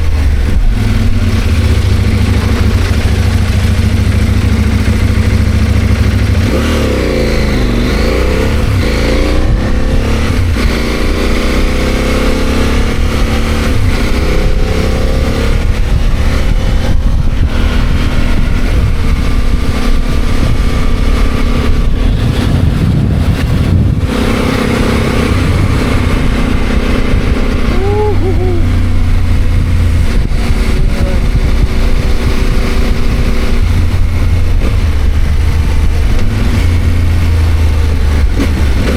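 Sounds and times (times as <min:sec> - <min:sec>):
motorcycle engine running: 0:00.0 - 0:38.9
road rumble and rushing noise: 0:00.0 - 0:38.9.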